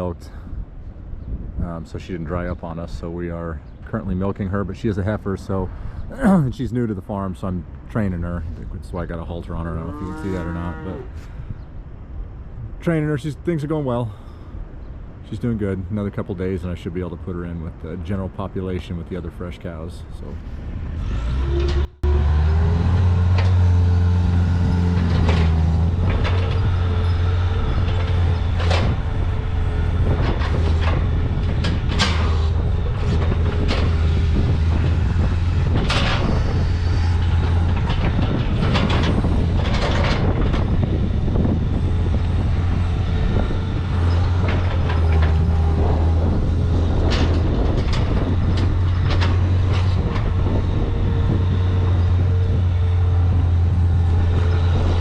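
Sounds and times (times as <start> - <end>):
farm machinery engine running: 20.9 - 55.0
metal clanks and rattles: 22.6 - 55.0.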